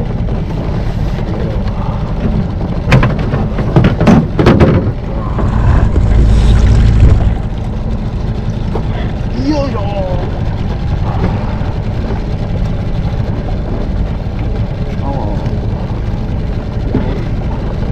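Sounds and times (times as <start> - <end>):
wind rumbling on microphone: 0.0 - 17.9
sharp knocks: 2.9 - 7.3.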